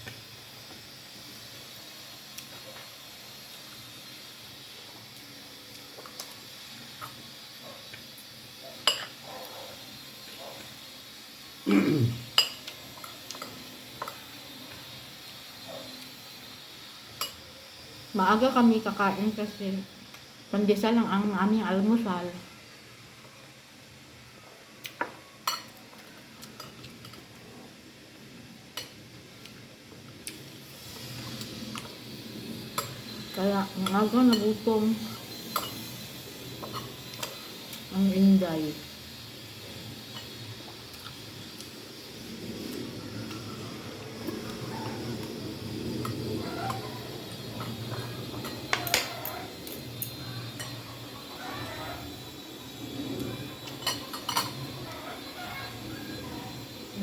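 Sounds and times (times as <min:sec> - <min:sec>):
cutlery clinking on a plate: 0:53.7 - 0:54.6.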